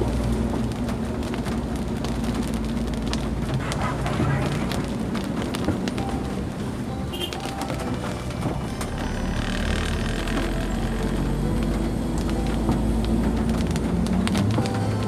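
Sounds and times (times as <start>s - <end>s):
raindrops ticking on car: 0.0s - 15.0s
road and engine rumble: 0.0s - 15.0s.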